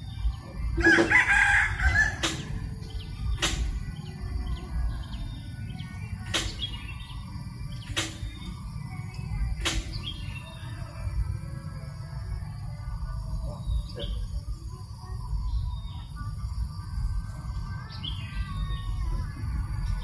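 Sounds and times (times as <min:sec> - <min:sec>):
faint bird chirps: 0:00.0 - 0:20.0
wind rumble on microphone: 0:00.0 - 0:20.0
rooster crowing: 0:00.8 - 0:02.7
sharp clicks: 0:02.2 - 0:02.6, 0:03.4 - 0:04.0, 0:06.2 - 0:06.8, 0:07.8 - 0:08.4, 0:09.6 - 0:10.1.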